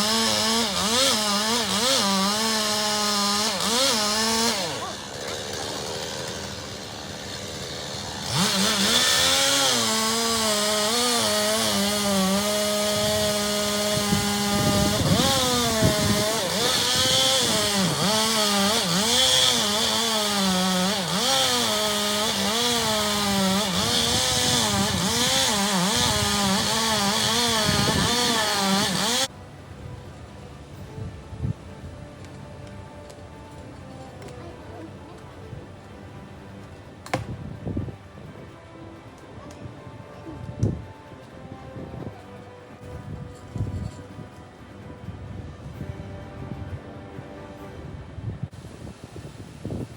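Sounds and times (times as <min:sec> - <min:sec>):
chainsaw revving and cutting: 0:00.0 - 0:29.3.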